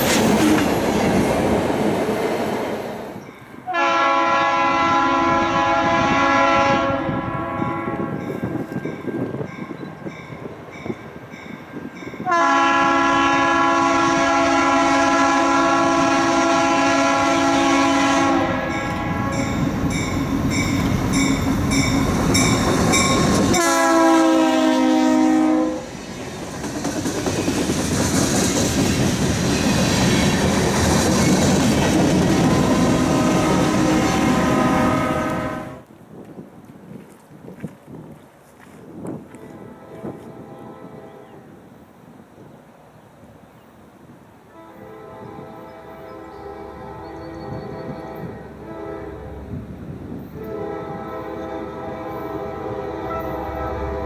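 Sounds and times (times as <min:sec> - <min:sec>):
train wheels clattering on rails: 0:00.0 - 0:02.5, 0:25.9 - 0:33.8
locomotive air horn: 0:03.6 - 0:08.3, 0:12.2 - 0:19.7, 0:23.2 - 0:25.9, 0:32.4 - 0:35.8, 0:39.4 - 0:41.4, 0:44.5 - 0:49.4, 0:50.4 - 0:54.0.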